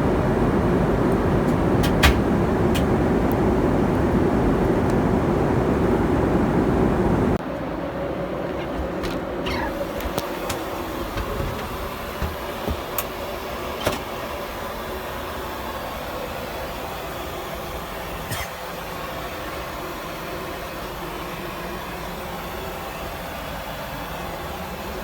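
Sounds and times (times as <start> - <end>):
airliner cabin drone: 0.0 - 25.0
sharp clicks and knocks: 1.5 - 2.9, 8.6 - 13.2.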